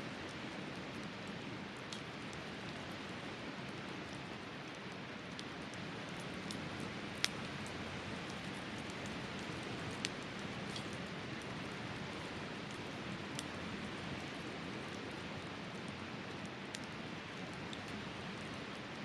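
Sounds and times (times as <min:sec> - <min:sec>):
campfire crackling: 0:00.0 - 0:19.0
fire popping: 0:04.7 - 0:18.8.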